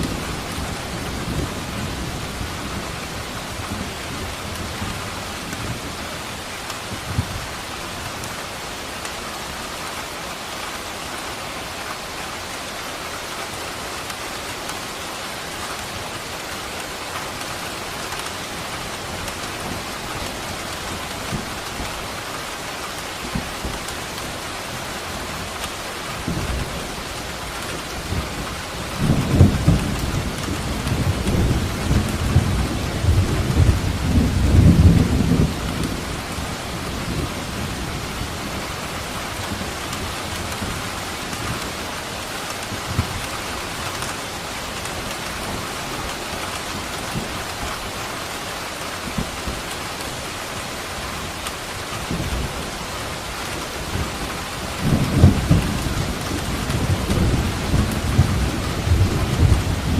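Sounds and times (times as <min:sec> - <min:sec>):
steady rain: 0:00.0 - 0:59.9
low rumble of thunder: 0:26.1 - 0:38.8, 0:52.0 - 0:59.9.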